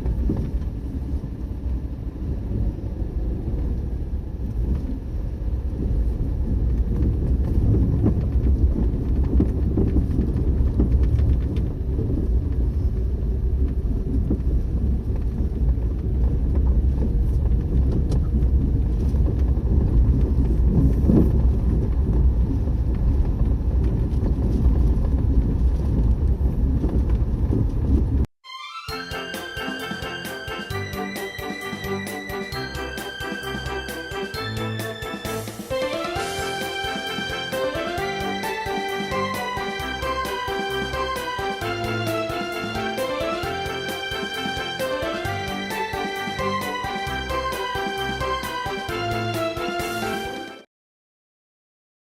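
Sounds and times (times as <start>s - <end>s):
wind buffeting microphone: 0.0s - 28.3s.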